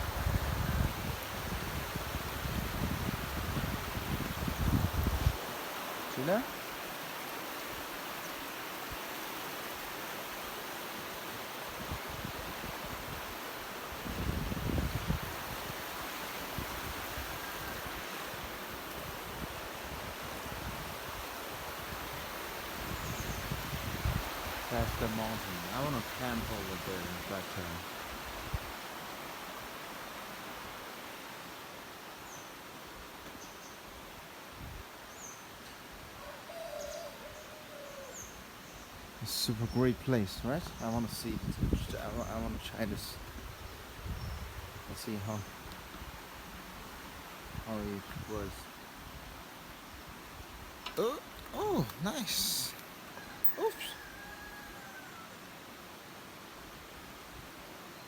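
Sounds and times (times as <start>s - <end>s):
creek water rushing over rocks: 1.0s - 14.2s, 15.2s - 32.8s, 51.0s - 54.0s
low long bird call: 36.2s - 38.4s, 51.0s - 55.4s
high bird chirps: 53.4s - 54.0s.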